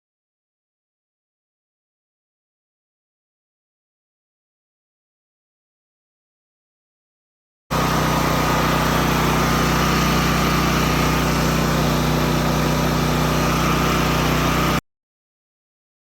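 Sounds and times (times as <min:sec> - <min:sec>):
generator engine running: 0:07.7 - 0:14.8.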